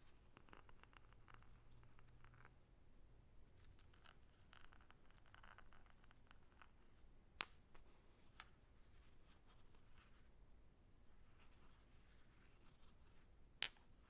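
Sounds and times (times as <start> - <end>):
glass clinking with ringing tone: 7.4 - 8.7, 13.6 - 14.0.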